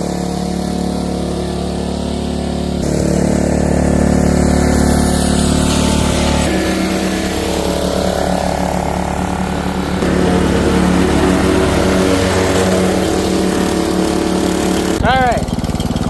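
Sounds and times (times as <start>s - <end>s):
riding lawnmower engine running: 0.0s - 16.0s.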